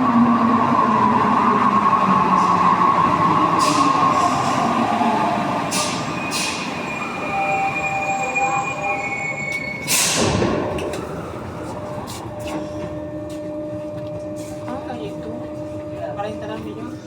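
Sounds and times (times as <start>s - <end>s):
train brakes squealing: 3.6s - 4.8s, 5.6s - 10.4s.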